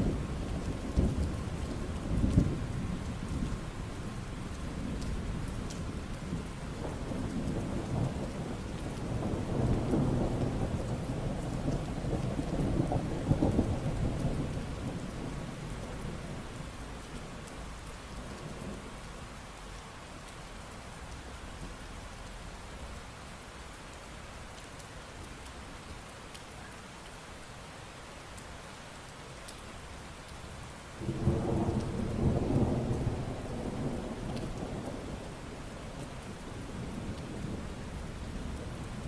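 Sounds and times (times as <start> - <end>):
steady rain falling: 0.0 - 39.0
thunder rumbling: 4.7 - 16.6, 31.0 - 39.0.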